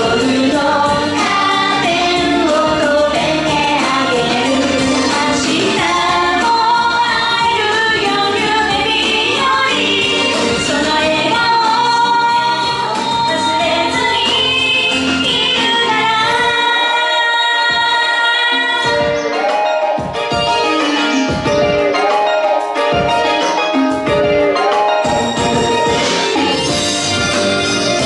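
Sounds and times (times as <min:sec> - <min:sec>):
woman singing: 0:00.0 - 0:19.2
instrumental accompaniment: 0:00.0 - 0:28.0.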